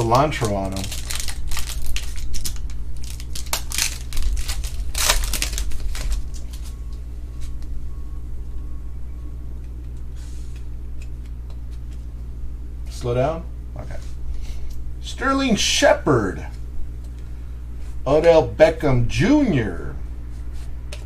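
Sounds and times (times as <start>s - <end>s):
wrapper crinkling: 0.0s - 6.8s
low hum: 0.0s - 21.0s.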